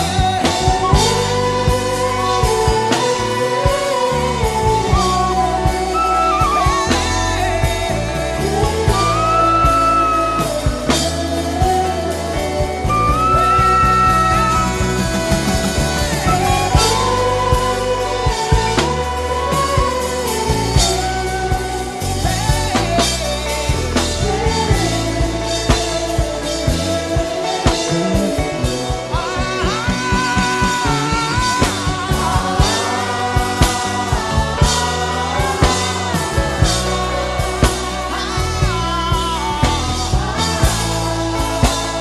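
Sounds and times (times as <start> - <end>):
backing band with drums and bass: 0.0 - 42.0
hummed vocal melody: 0.0 - 42.0.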